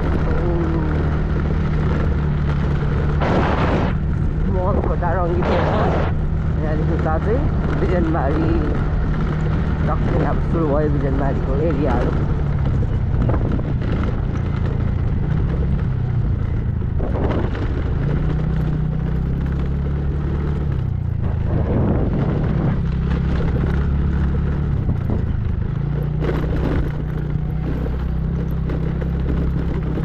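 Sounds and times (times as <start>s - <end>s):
wind noise: 0.0s - 19.3s, 20.6s - 27.6s
road noise: 0.0s - 30.0s
vehicle engine running: 0.0s - 30.0s.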